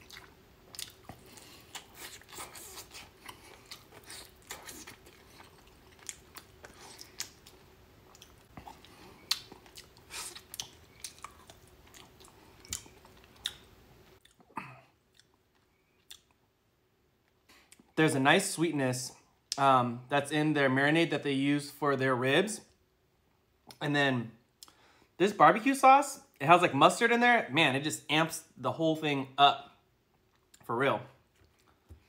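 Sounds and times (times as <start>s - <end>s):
close-up chewing with mouth smacks: 0.0s - 16.4s
faint steady hum: 0.0s - 32.0s.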